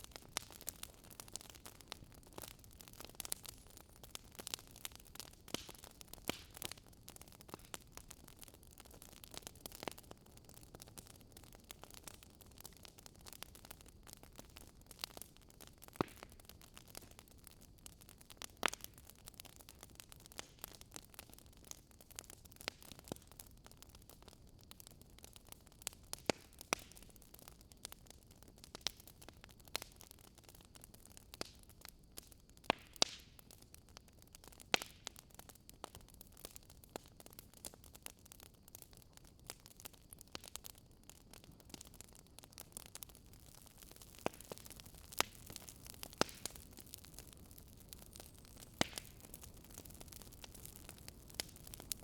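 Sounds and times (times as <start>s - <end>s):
loud fire pops: 0.0s - 23.4s, 25.8s - 27.2s, 32.6s - 33.6s, 41.6s - 52.0s
fire hissing softly: 0.0s - 52.0s
wood fire crackling: 0.0s - 52.0s.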